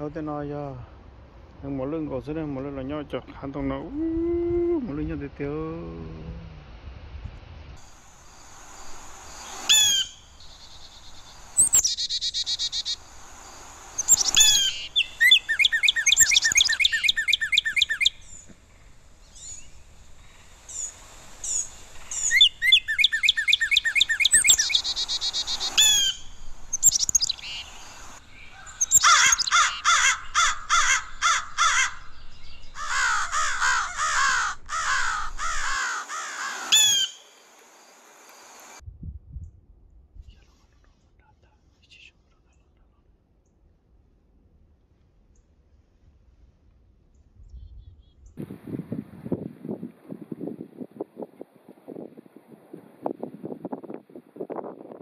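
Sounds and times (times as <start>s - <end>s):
birds chirping rapidly: 8.3s - 37.3s.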